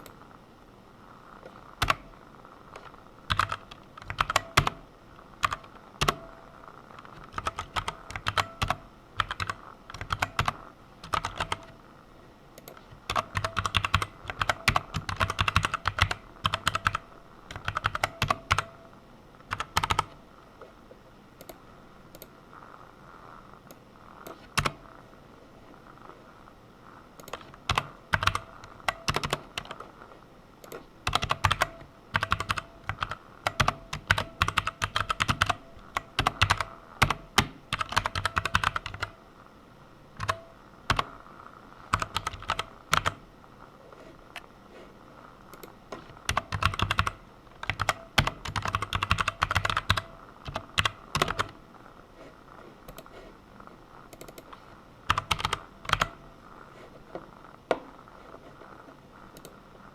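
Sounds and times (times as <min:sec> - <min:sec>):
computer keyboard typing: 0:01.4 - 0:04.8, 0:05.4 - 0:11.8, 0:12.6 - 0:18.8, 0:19.5 - 0:20.2, 0:23.7 - 0:24.9, 0:27.2 - 0:30.0, 0:30.6 - 0:39.2, 0:40.2 - 0:41.2, 0:41.9 - 0:43.2, 0:45.5 - 0:51.6, 0:52.9 - 0:53.1, 0:54.1 - 0:56.2, 0:59.3 - 0:59.6.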